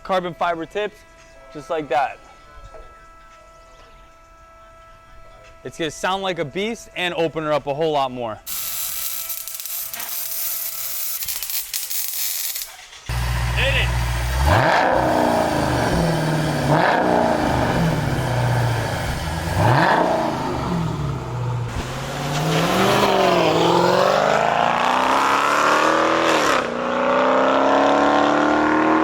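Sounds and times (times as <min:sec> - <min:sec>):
car engine revving and accelerating: 0:13.1 - 0:29.0.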